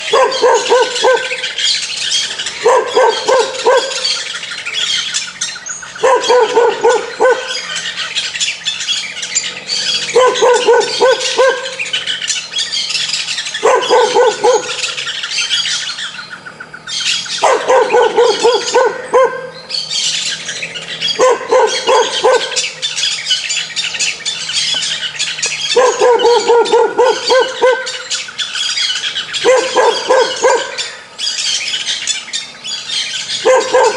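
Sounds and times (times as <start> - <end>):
dog barking: 0.0 - 1.5, 2.6 - 4.2, 6.0 - 7.7, 10.0 - 11.8, 13.6 - 15.0, 17.4 - 19.6, 21.1 - 22.7, 25.7 - 28.1, 29.4 - 30.9, 33.4 - 33.9
birds chirping: 0.0 - 33.9.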